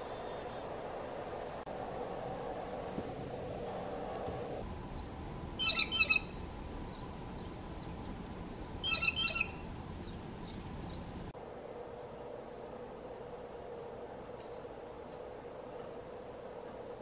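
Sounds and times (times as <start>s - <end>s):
bird calling: 5.6s - 8.2s, 8.8s - 11.2s.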